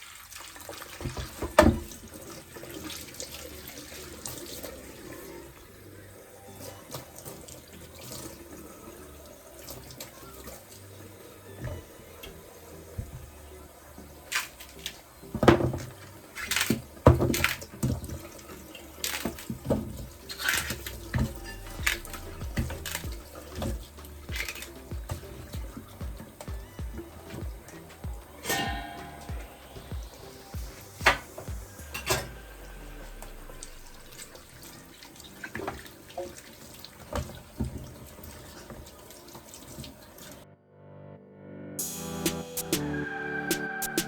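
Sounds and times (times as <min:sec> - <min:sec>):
kitchen tap running into sink: 0:00.0 - 0:06.3, 0:06.9 - 0:40.4
items clattering in sink: 0:00.6 - 0:04.8, 0:14.2 - 0:30.1, 0:33.6 - 0:40.4.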